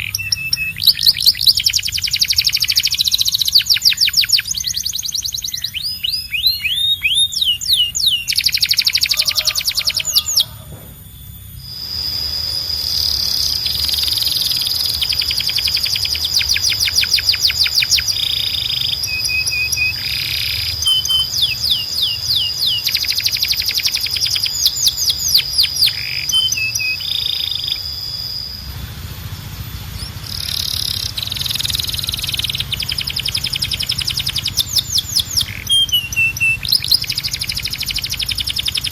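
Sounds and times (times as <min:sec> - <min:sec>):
canary singing trills: 0:00.0 - 0:38.9
steady high whistle: 0:00.0 - 0:38.9.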